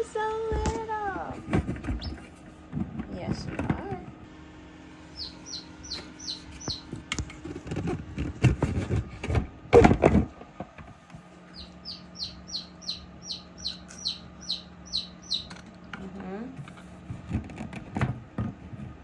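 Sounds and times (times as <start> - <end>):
chick peeping: 1.8 - 2.3, 5.0 - 7.0, 11.4 - 15.6.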